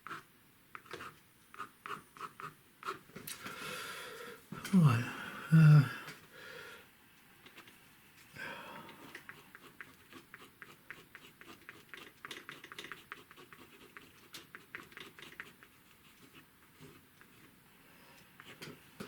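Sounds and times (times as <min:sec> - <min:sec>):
scratchy strokes on paper: 0:09.1 - 0:17.6.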